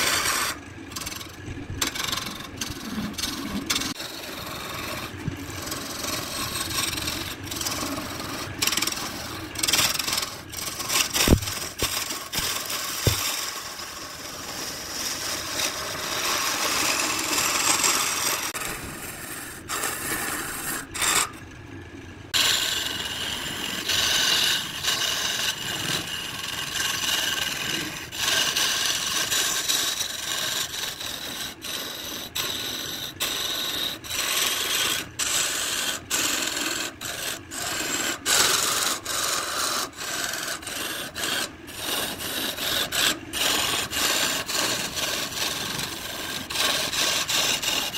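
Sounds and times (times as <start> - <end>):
lathe gouge scraping: 0.0 - 21.4, 22.3 - 47.9
sharp knocks: 11.2 - 13.3.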